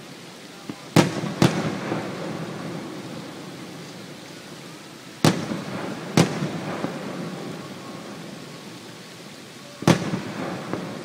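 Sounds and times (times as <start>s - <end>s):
firework shells bursting: 0.6s - 4.5s, 5.2s - 9.0s, 9.8s - 11.0s.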